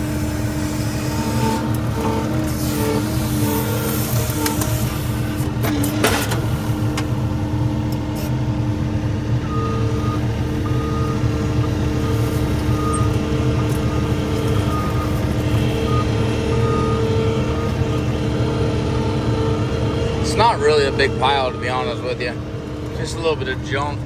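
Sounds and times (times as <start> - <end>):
skid steer engine whining: 0.0 - 24.0
backup alarm beeping: 9.4 - 23.8.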